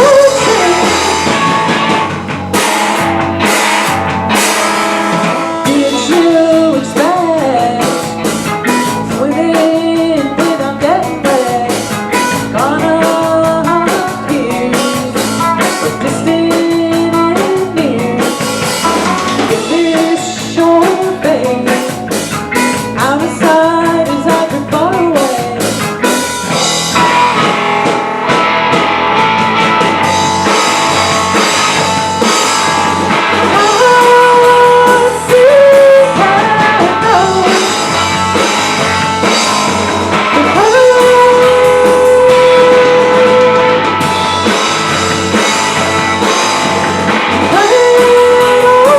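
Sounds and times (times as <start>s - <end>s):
person singing: 0.0s - 2.0s, 5.5s - 25.9s, 33.4s - 39.5s, 40.2s - 44.1s, 47.4s - 48.9s
drum kit: 0.0s - 48.9s
guitar: 0.0s - 48.9s.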